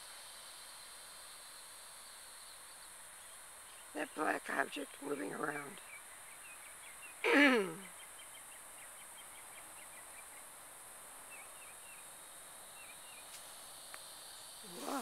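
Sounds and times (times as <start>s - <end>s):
high-pitched insect hiss: 0.0s - 5.0s, 5.8s - 15.0s
woman saying ooh: 7.2s - 7.9s, 14.7s - 15.0s.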